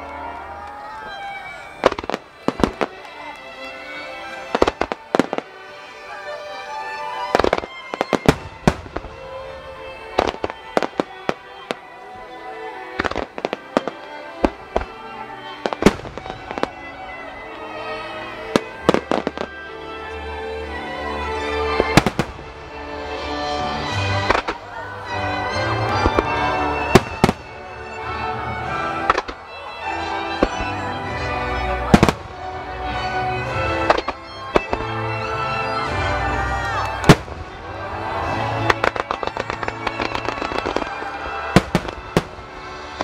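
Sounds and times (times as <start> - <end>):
firework bangs: 1.8 - 3.2, 4.4 - 5.6, 7.3 - 11.8, 12.9 - 19.6, 21.7 - 23.2, 25.8 - 35.1, 35.9 - 43.0.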